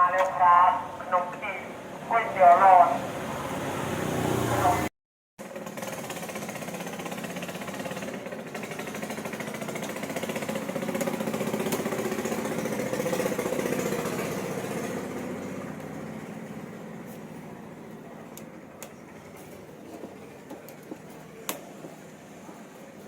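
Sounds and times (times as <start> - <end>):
electric fan running: 5.6 - 23.0.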